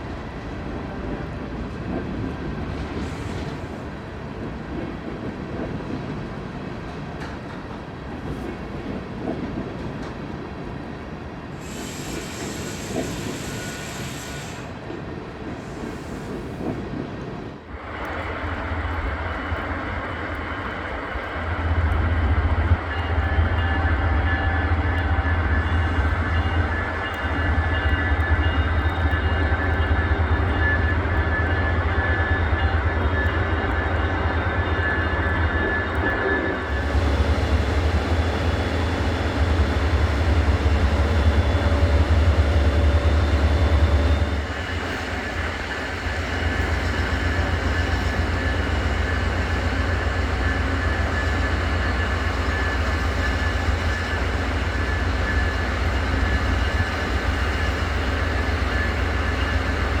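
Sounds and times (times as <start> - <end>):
diesel locomotive drone and whine: 0.0 - 60.0
train rumble: 0.0 - 60.0
brief hiss: 11.6 - 14.8.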